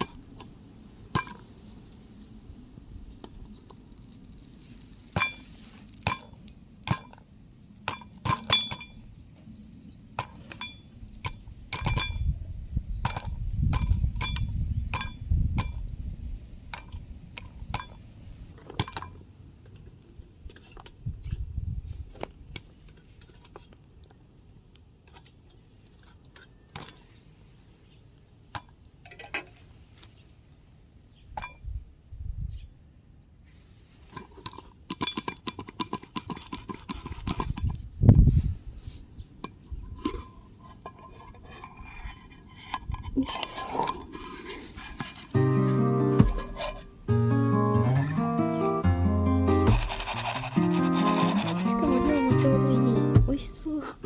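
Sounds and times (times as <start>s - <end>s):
popcorn popping in metal pot: 49.7s - 52.3s.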